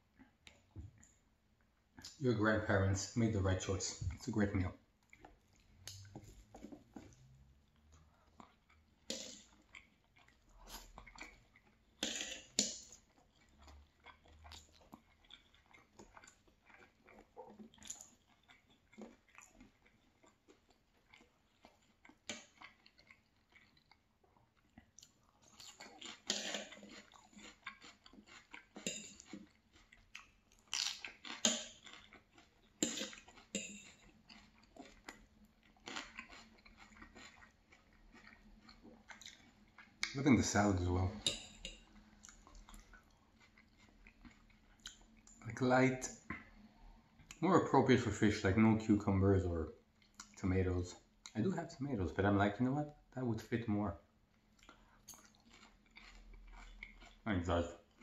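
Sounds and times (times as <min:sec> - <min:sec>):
chewing and crunching food: 0:00.0 - 0:58.0.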